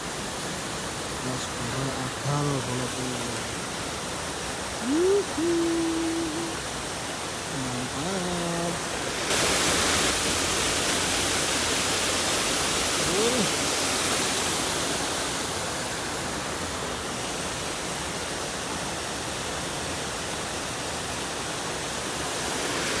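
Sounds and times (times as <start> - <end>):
stream water rushing: 0.0 - 23.0
short rising-and-falling call: 4.8 - 6.6.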